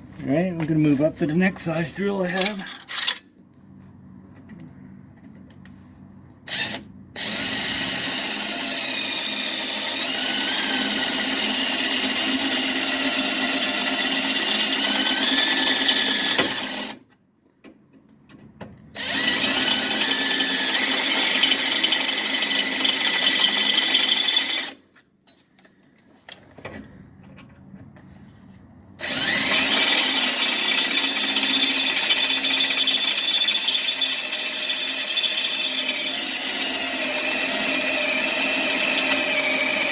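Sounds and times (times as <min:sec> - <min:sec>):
electric drill boring into metal: 0:06.5 - 0:17.0, 0:19.0 - 0:24.8, 0:29.0 - 0:39.9.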